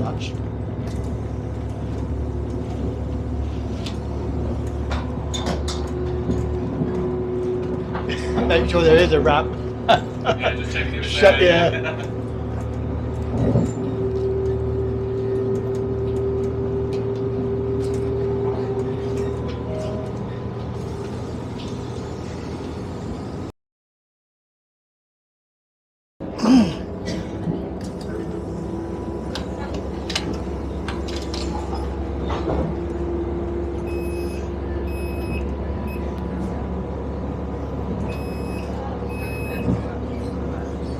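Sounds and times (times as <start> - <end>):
train engine drone: 0.0 - 23.5, 26.2 - 40.9
high electronic beep: 33.9 - 36.1, 38.1 - 39.7.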